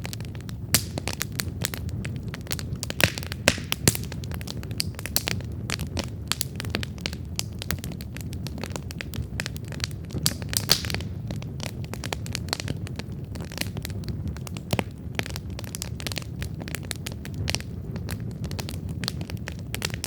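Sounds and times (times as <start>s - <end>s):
campfire crackling and popping: 0.0s - 20.0s
low rumble of flames: 0.0s - 20.0s.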